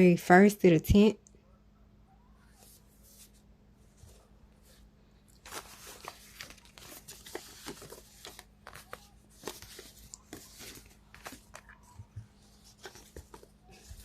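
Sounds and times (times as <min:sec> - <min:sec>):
cards being shuffled: 0:05.4 - 0:14.0.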